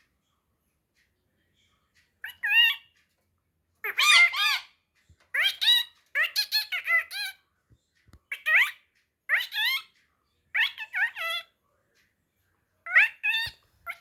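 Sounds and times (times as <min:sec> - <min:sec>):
parrot squeaky calls: 0:02.2 - 0:02.9, 0:03.8 - 0:07.4, 0:08.3 - 0:11.5, 0:12.8 - 0:14.0.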